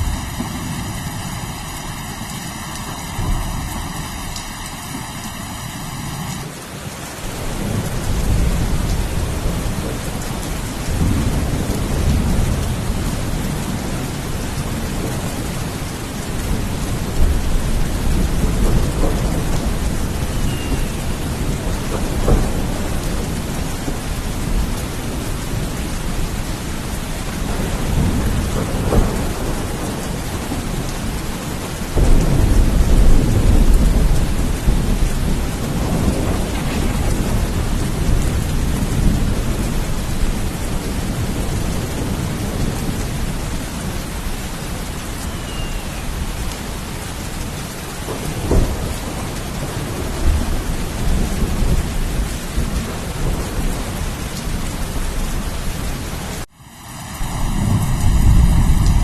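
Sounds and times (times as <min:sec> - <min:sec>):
thunder rumbling: 0:00.0 - 0:06.5, 0:07.2 - 0:59.0
heavy rain: 0:00.0 - 0:59.0
sharp thunder crack: 0:32.0 - 0:40.4.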